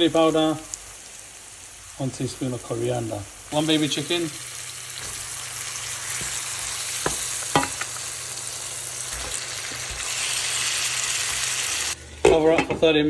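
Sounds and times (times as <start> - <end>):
chicken sizzling in hot oil: 0.0 - 12.7.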